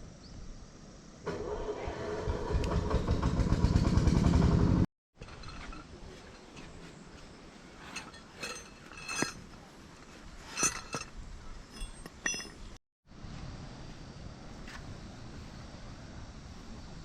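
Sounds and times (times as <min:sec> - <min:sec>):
tableware clinking: 0:07.8 - 0:09.5, 0:11.7 - 0:12.7.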